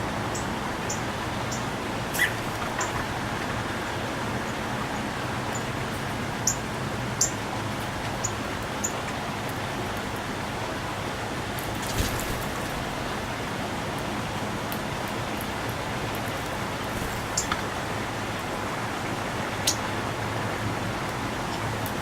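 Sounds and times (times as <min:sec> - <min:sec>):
birds chirping: 0:00.3 - 0:03.8, 0:16.2 - 0:17.9, 0:19.6 - 0:19.9.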